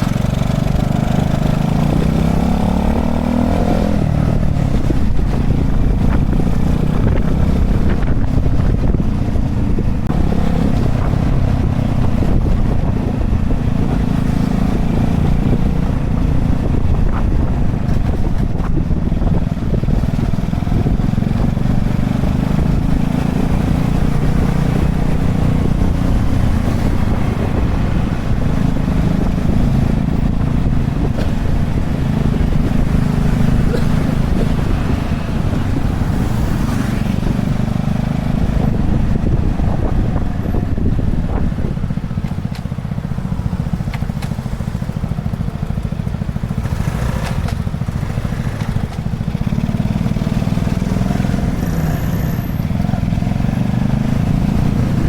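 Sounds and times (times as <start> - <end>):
wind buffeting microphone: 0.0 - 55.0
small motorbike engine running: 38.3 - 55.0.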